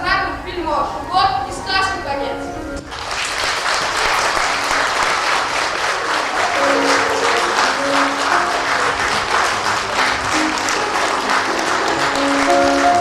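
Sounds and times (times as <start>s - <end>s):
audience applauding: 2.8s - 13.0s
instrumental music: 5.8s - 13.0s.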